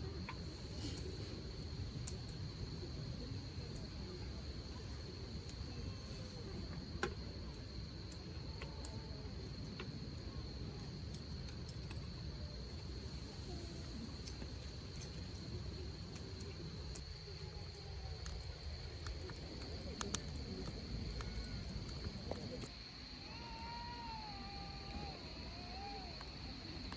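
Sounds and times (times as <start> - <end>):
crickets trilling: 0.0 - 26.9
campfire crackling and popping: 10.9 - 22.7.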